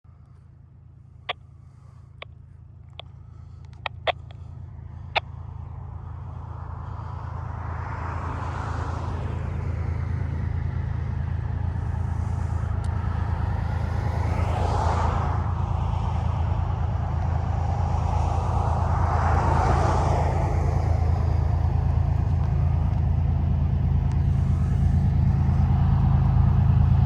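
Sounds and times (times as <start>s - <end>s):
diesel locomotive rumble: 0.1s - 27.0s
passing road vehicle: 0.1s - 27.0s
sharp clicks: 2.2s - 4.4s.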